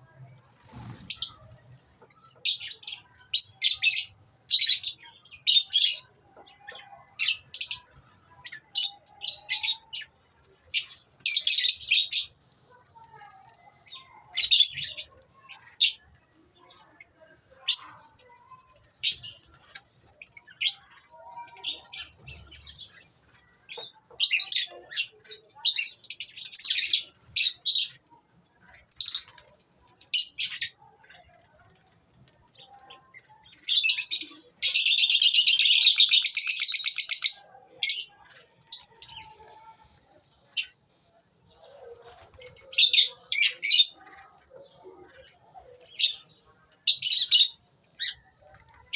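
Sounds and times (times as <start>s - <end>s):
lovebirds chirping: 28.7s - 40.8s.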